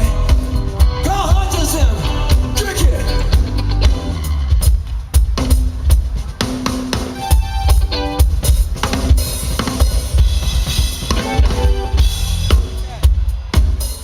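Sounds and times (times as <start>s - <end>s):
heavy bass line: 0.0s - 4.9s, 11.2s - 13.0s
band playing through pa: 0.0s - 14.0s.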